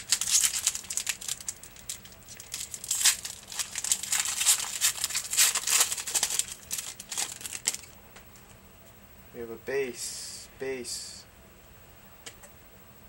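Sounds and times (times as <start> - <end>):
foil wrapper crackling: 0.0 - 8.0.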